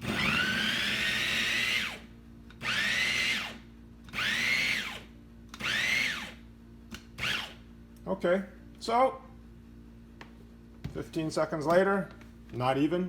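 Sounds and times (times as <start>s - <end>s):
electric food chopper whining: 0.0s - 6.4s.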